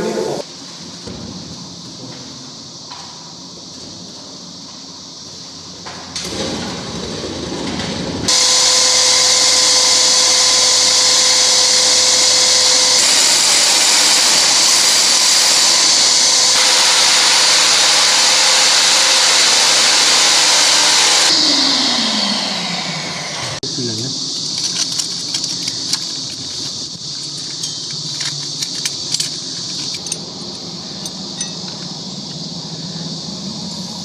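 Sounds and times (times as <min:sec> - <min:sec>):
core drill cutting concrete: 0:06.2 - 0:23.6.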